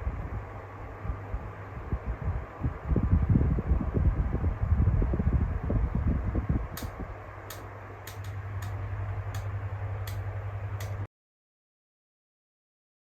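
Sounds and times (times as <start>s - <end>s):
fan motor hum: 0.0s - 11.1s
low air rumble: 0.0s - 11.1s
oscillating fan clicks: 6.0s - 11.1s.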